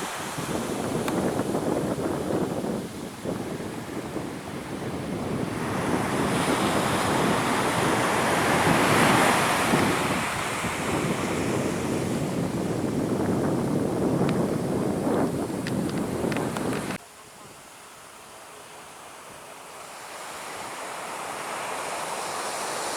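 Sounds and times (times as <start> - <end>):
wind buffeting microphone: 0.0 - 17.0
surf washing onto beach: 0.0 - 22.9.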